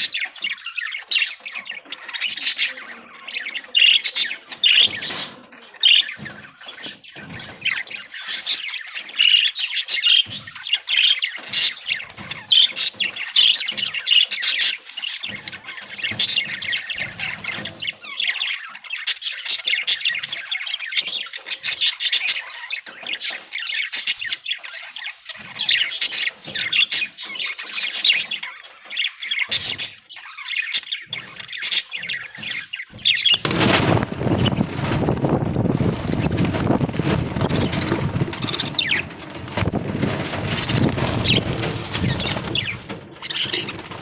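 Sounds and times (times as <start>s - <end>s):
budgerigars chirping: 0.0s - 33.6s
steady rushing noise: 33.4s - 44.0s.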